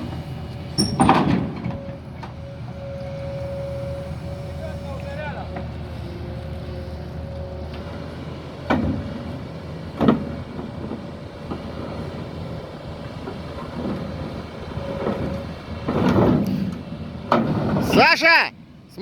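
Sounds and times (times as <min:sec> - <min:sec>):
excavator diesel engine running: 0:00.0 - 0:19.0
metal scraping clatter: 0:13.2 - 0:18.0.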